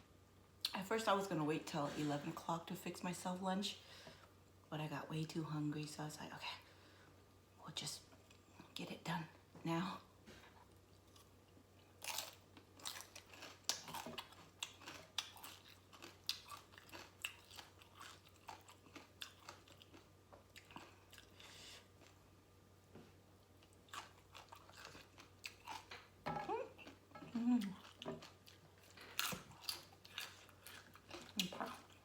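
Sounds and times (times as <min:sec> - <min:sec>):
person chewing and crunching: 0:11.0 - 0:22.2, 0:23.5 - 0:32.0.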